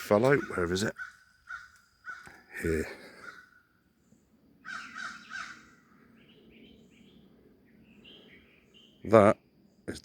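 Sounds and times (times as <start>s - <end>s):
bird calling: 0.0s - 9.1s.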